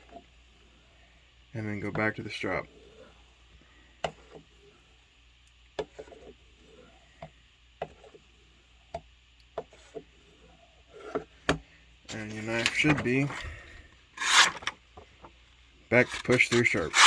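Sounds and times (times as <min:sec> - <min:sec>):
knife blade on sharpener: 0:12.1 - 0:14.7, 0:16.0 - 0:17.0.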